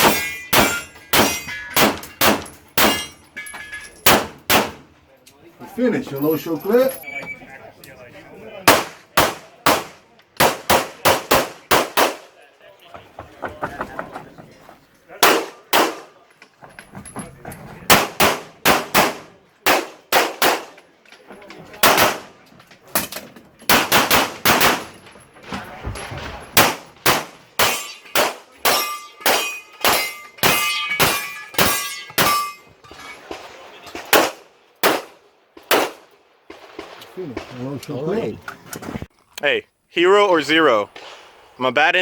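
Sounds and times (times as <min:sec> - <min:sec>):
pistol shots: 0:00.0 - 0:03.0, 0:04.0 - 0:04.8, 0:08.6 - 0:12.3, 0:15.2 - 0:16.2, 0:17.9 - 0:20.8, 0:21.8 - 0:22.4, 0:23.7 - 0:24.9, 0:26.5 - 0:32.4, 0:33.3 - 0:37.2
steel targets ringing: 0:00.0 - 0:04.2, 0:27.6 - 0:33.2.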